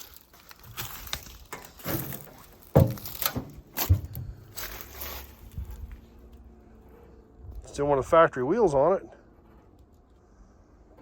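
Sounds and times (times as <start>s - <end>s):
crunching and rustling: 0.0s - 7.2s
sharp thumps: 1.5s - 4.7s.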